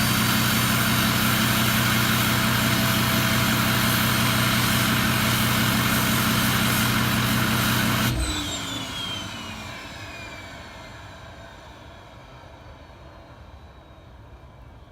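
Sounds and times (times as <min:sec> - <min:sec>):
diesel engine idling loudly: 0:00.0 - 0:09.6
turbo whine spinning down: 0:00.0 - 0:12.3.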